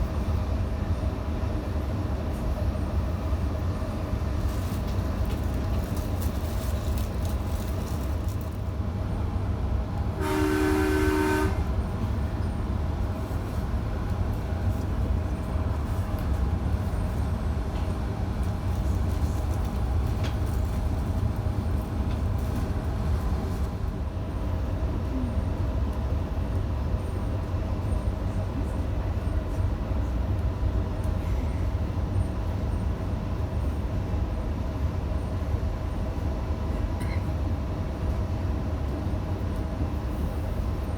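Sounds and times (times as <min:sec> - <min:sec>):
train rumbling: 0:00.0 - 0:40.9
two-note train horn: 0:10.1 - 0:11.8.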